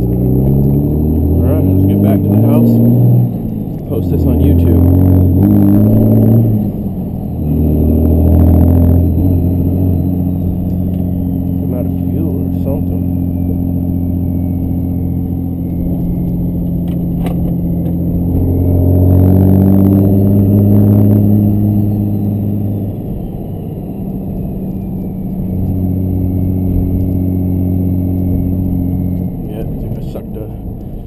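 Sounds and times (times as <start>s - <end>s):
diesel engine revving: 0.0s - 31.0s.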